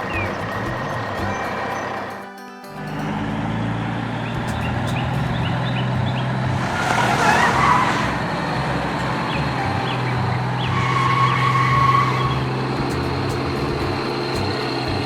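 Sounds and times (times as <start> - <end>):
tires skidding and squealing: 2.8 - 13.5
vehicle engine humming: 2.8 - 15.0.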